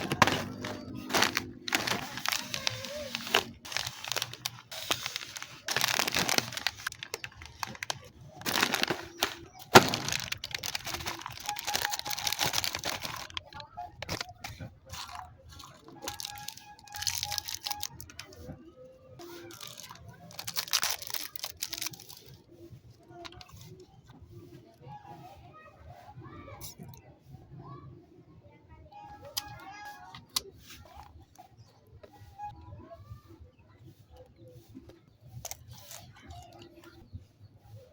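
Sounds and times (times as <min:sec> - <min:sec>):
plastic wrapper crinkling: 0:00.0 - 0:18.5, 0:19.2 - 0:22.4.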